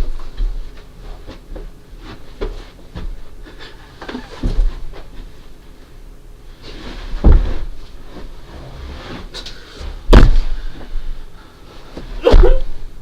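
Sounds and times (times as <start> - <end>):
heavy thumps: 7.1 - 8.3, 10.0 - 10.9, 12.0 - 12.8.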